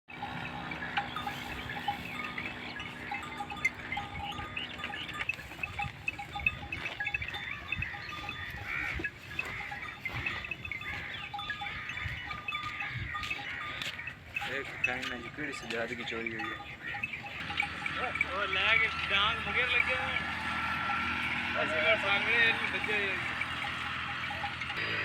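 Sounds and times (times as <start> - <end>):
farm livestock: 0.1 - 25.0
ringing bell-like tones: 0.1 - 25.0.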